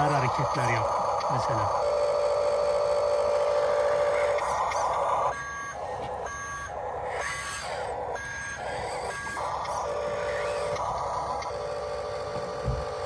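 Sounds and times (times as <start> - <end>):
buzzing toy engine sound: 0.0 - 13.0
reversing beeper: 3.8 - 6.8.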